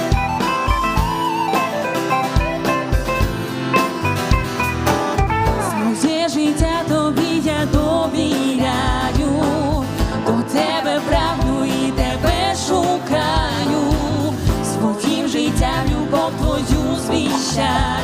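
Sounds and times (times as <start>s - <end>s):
live band playing worship song: 0.0s - 18.0s
person singing: 5.6s - 18.0s.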